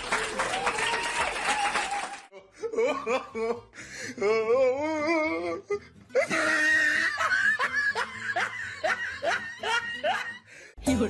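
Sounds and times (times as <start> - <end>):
person laughing loudly: 2.4 - 3.8, 6.1 - 10.4.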